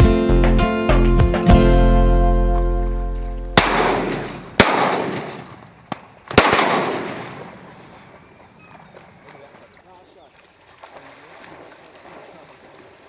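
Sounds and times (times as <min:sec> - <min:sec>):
guitar chord: 0:00.0 - 0:04.5
shotgun blasts echoing: 0:03.6 - 0:08.1.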